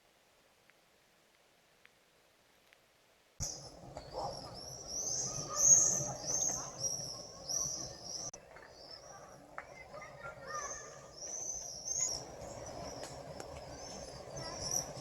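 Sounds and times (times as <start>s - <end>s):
bird high chirping call: 3.4s - 15.0s
faint bird calls: 3.4s - 15.0s.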